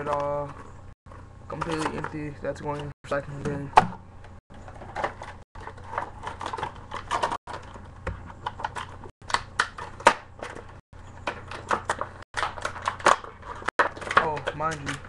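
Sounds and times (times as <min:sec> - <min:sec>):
plastic and cardboard packaging handled: 0:04.6 - 0:15.0.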